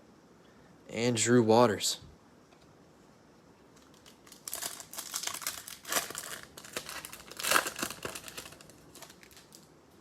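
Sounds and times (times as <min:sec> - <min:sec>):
foil wrapper tearing and crinkling: 0:03.8 - 0:09.7.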